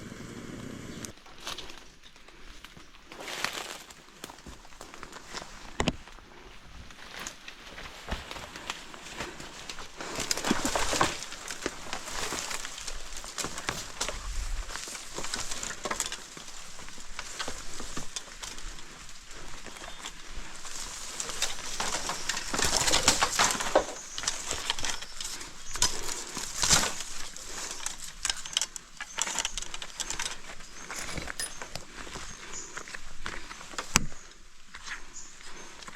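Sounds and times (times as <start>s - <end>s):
bird calling: 0.0s - 1.1s, 28.7s - 34.3s
footsteps rustling through undergrowth: 1.2s - 35.9s.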